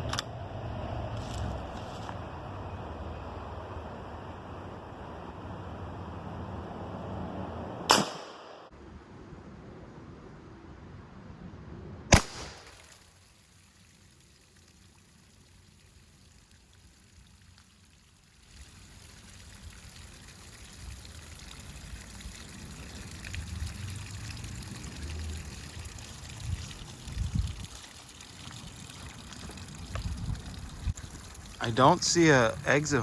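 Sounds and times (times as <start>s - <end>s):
air rifle shot: 7.9s - 8.7s, 12.1s - 12.8s
water trickling: 12.8s - 33.0s.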